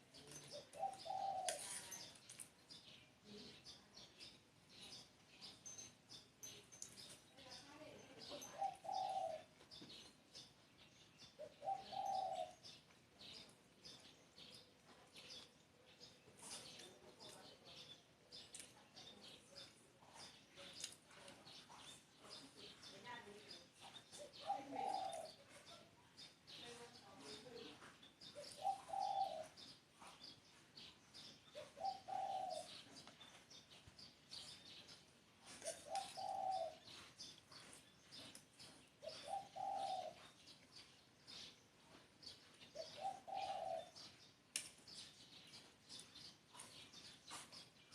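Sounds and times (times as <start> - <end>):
small birds chirping: 0.0 - 47.9
dove cooing: 0.4 - 2.0, 8.2 - 9.5, 11.4 - 13.4, 24.2 - 25.7, 28.3 - 29.7, 31.5 - 33.1, 35.6 - 37.1, 39.0 - 40.3, 42.7 - 44.1.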